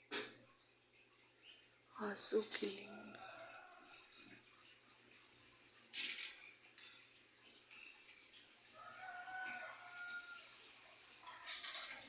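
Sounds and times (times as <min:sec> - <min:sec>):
high songbird chirps: 0:07.4 - 0:12.0.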